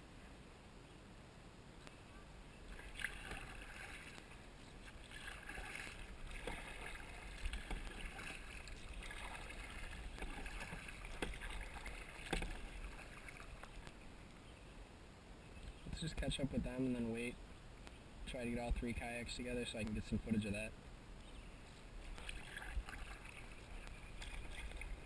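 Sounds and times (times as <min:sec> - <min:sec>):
paddle splashing water: 0:02.6 - 0:14.2, 0:22.0 - 0:25.0.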